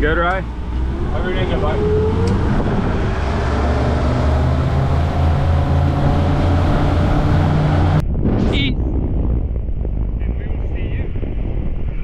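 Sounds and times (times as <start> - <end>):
outboard motors droning: 0.0 - 8.0.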